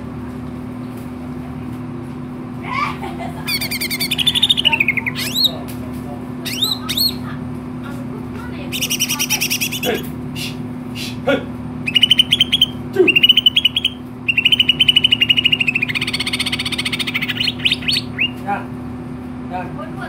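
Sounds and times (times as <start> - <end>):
steady low hum: 0.0 - 20.0
bird chattering song: 3.5 - 5.7, 6.4 - 7.4, 8.6 - 11.2, 11.8 - 18.4.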